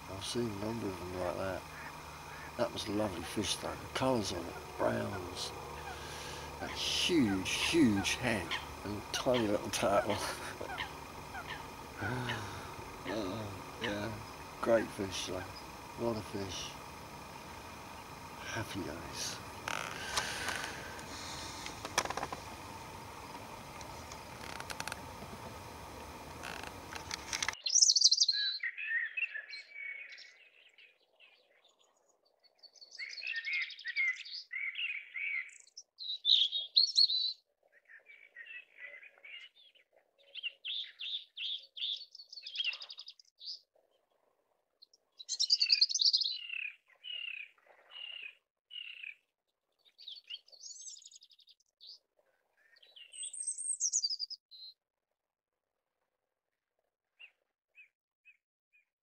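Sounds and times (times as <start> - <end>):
faint outdoor hiss: 0.0 - 28.6
songbird singing: 0.0 - 43.6, 44.8 - 52.0, 52.6 - 54.8.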